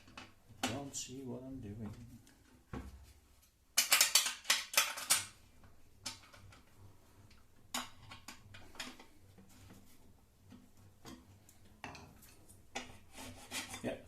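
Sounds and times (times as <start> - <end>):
small metal parts rattling: 3.8 - 5.4.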